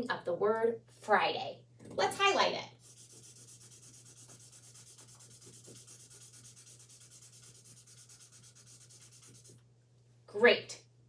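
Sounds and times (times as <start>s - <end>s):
highlighter rubbing on paper: 2.8s - 9.6s.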